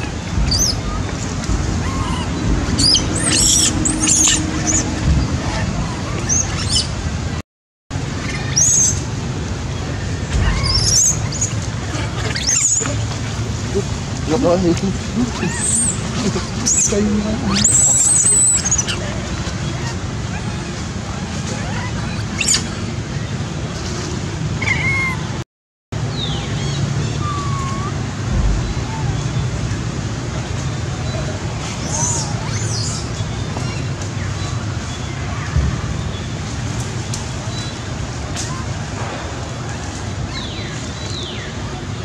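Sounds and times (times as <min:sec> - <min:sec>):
baby monkeys squealing: 0:00.0 - 0:07.0, 0:08.2 - 0:09.1, 0:10.2 - 0:23.3, 0:24.6 - 0:25.2, 0:26.1 - 0:28.0, 0:31.8 - 0:33.9
low rumble: 0:00.0 - 0:07.4, 0:28.0 - 0:31.7
steady low rumble: 0:00.0 - 0:24.6, 0:26.0 - 0:42.0
rushing outdoor noise: 0:00.0 - 0:25.4, 0:26.0 - 0:42.0.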